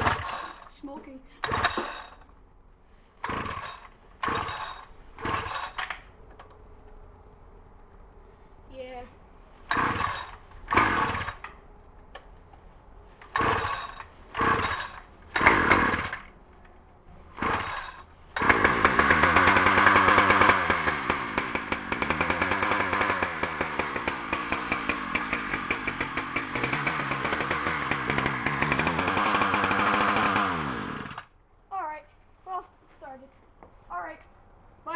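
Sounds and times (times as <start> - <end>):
small gasoline engine running: 0.0 - 0.7, 1.4 - 2.2, 3.2 - 5.9, 9.7 - 11.4, 13.3 - 16.3, 17.4 - 31.3
recoil starter pulls whirring: 0.0 - 2.4, 3.2 - 6.6, 9.6 - 12.3, 13.2 - 16.6, 17.2 - 31.4.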